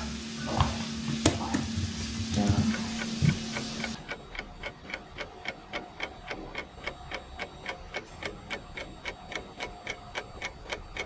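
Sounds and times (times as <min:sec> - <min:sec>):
frying sizzle: 0:00.0 - 0:04.0
clock-like ticking: 0:03.0 - 0:11.0.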